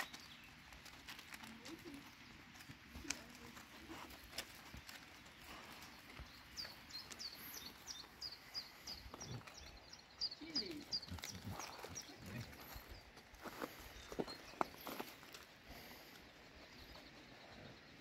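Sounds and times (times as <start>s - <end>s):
small bird singing: 0.0s - 0.6s, 5.3s - 15.2s
rustling: 0.0s - 9.6s.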